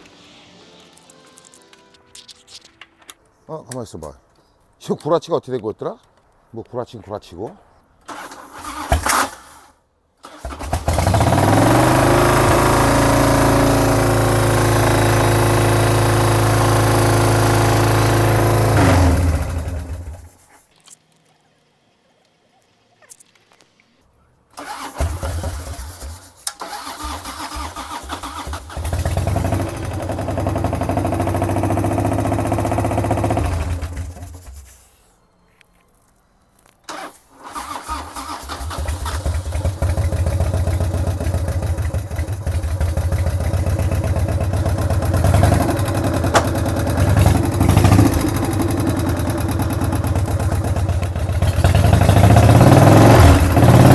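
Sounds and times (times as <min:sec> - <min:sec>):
motorcycle engine revving: 0:10.4 - 0:20.2, 0:24.6 - 0:34.3, 0:37.6 - 0:53.9.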